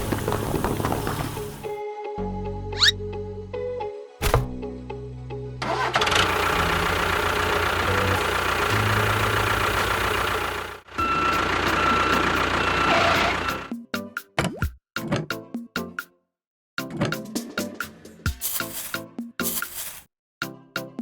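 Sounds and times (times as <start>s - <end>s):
engine droning: 5.6s - 13.7s.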